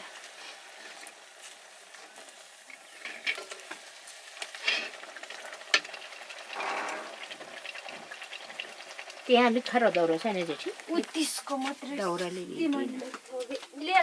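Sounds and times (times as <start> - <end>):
dough sizzling in hot oil: 0.0 - 14.0
utensil scraping and clicking in pan: 2.8 - 3.8, 4.4 - 9.2.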